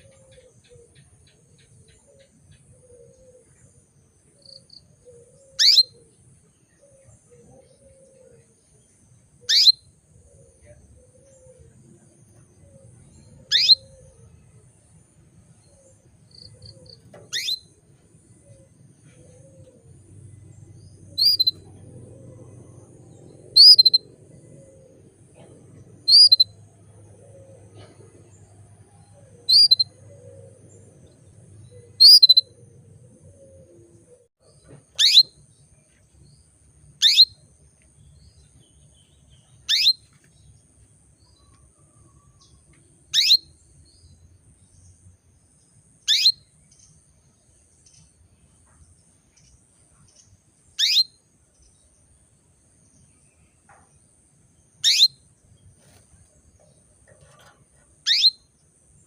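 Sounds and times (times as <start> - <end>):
canary chirping calls: 4.5 - 6.0, 9.5 - 9.8, 12.8 - 14.2, 16.4 - 17.8, 20.6 - 33.7, 34.9 - 35.4, 37.0 - 37.5, 38.4 - 40.3, 43.1 - 43.5, 46.1 - 46.4, 50.8 - 51.1, 54.8 - 55.2, 57.1 - 58.5.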